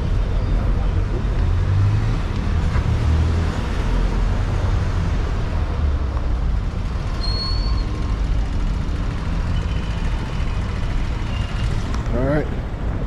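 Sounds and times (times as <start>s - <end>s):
traffic rumble: 0.0s - 13.0s
short high squeal: 7.2s - 8.0s.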